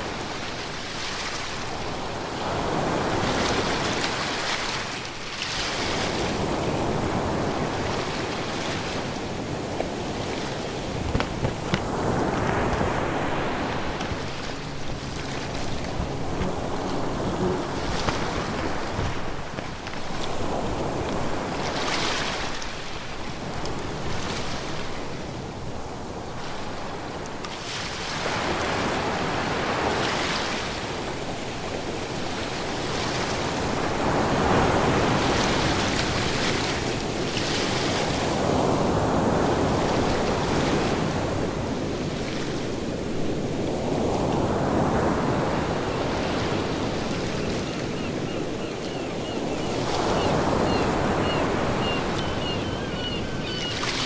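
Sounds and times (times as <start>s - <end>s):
ocean waves breaking: 0.0s - 25.8s.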